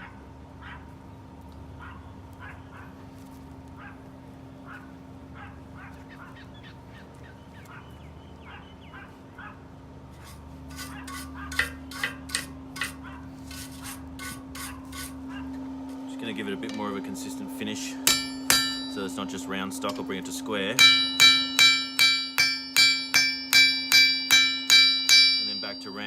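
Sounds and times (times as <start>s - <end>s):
workshop hum: 0.0s - 26.0s
sharp metallic clanks: 18.0s - 20.1s, 20.7s - 26.0s.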